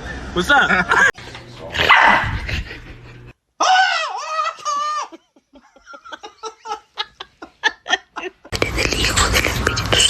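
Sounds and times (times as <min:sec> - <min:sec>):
person laughing: 0:02.3 - 0:03.3, 0:04.1 - 0:09.9.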